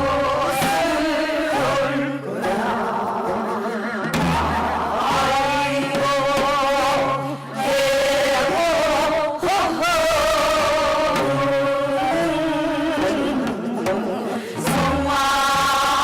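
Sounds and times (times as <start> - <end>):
folk singing with wavering vibrato: 0.0 - 16.0.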